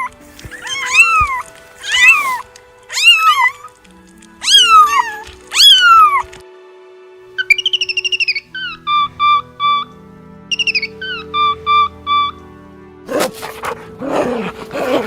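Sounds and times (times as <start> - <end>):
cat meowing: 0.0 - 3.8, 4.4 - 6.4
faint background music: 0.0 - 15.0.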